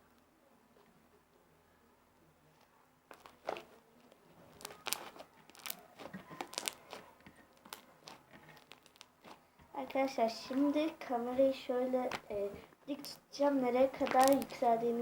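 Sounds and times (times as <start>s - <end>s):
slime squeezed crackling: 3.1s - 10.9s, 11.9s - 15.0s.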